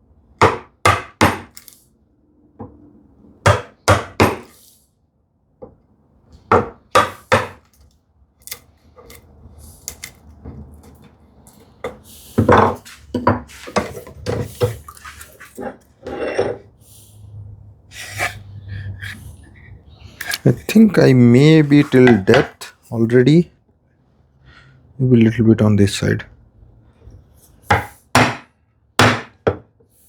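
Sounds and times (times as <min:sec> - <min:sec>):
chisel scraping and tapping wood: 0:06.4 - 0:16.6, 0:20.2 - 0:21.0, 0:21.6 - 0:22.7.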